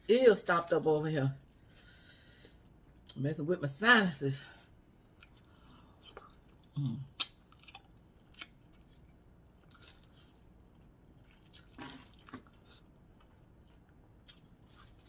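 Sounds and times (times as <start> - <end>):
wet chewing sounds: 4.8 - 15.0.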